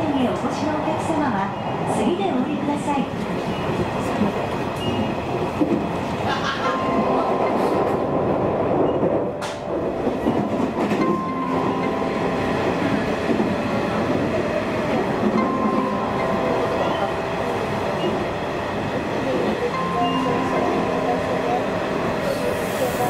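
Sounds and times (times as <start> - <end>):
wheels rumbling on rail: 0.0 - 23.0
rail-joint clicks: 8.8 - 20.8.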